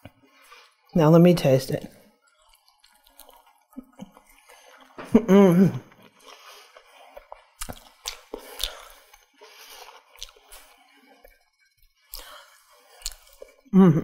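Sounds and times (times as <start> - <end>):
person chewing food: 0.0 - 1.0, 1.9 - 13.8
mouth clicks and smacks: 2.2 - 13.6.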